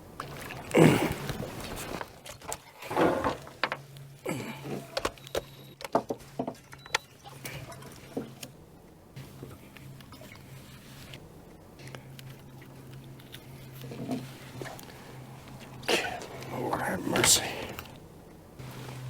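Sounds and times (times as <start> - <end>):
steady low hum: 7.2 - 19.0.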